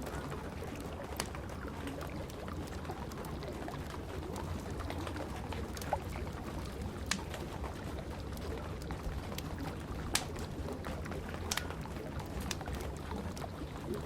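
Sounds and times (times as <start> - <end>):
rain rumbling: 0.0 - 14.0
wood fire crackling: 0.0 - 14.0
sharp pops of fire: 11.4 - 11.8.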